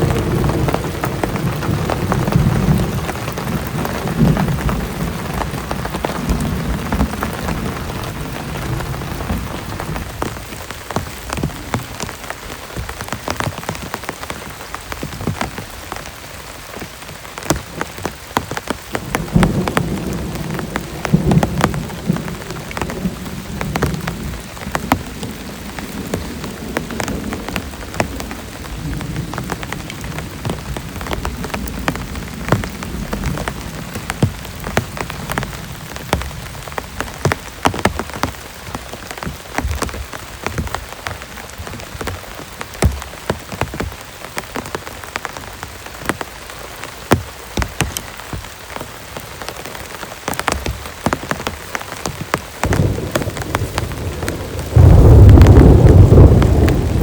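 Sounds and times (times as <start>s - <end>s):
low thunder rumble: 0.0s - 12.5s, 19.0s - 41.0s, 52.6s - 57.0s
heavy rain falling: 0.0s - 57.0s.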